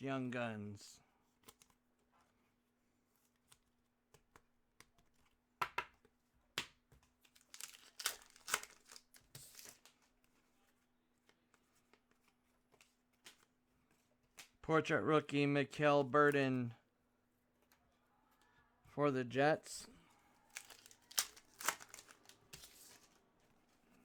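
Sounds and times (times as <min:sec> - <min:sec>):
foil wrapper crinkling: 0:07.2 - 0:10.0, 0:20.5 - 0:23.2.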